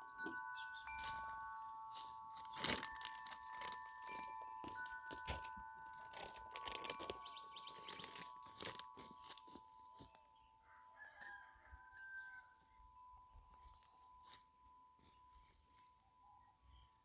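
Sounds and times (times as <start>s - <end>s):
wind chimes ringing: 0.0s - 17.0s
bird seed bag crinkling: 2.0s - 10.2s.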